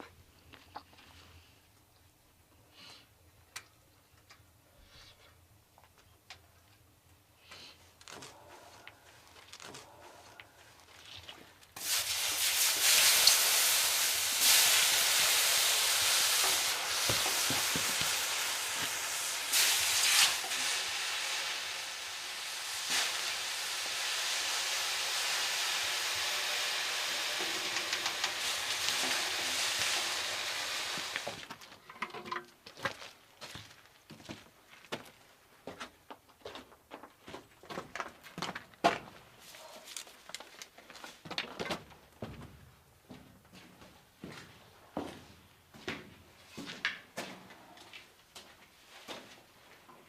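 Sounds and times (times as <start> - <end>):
food sizzling in a hot pan: 11.8 - 31.4.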